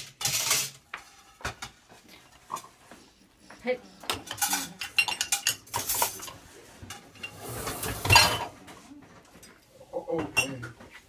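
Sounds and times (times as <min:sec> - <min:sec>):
dishes and silverware clinking: 0:00.0 - 0:01.8, 0:04.0 - 0:11.0
dishes rattling clatter: 0:04.1 - 0:08.6.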